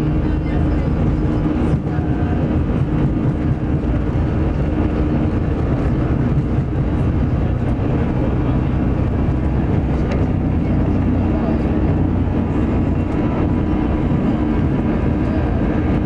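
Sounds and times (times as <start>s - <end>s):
jet engine drone in cabin: 0.0s - 16.0s.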